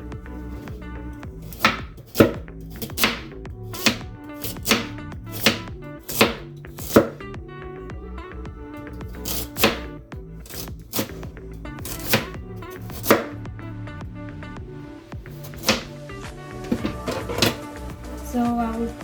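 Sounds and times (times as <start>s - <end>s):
knife chopping carrot: 1.4s - 7.2s, 9.2s - 11.2s, 11.8s - 13.4s, 15.3s - 15.9s, 16.7s - 17.6s.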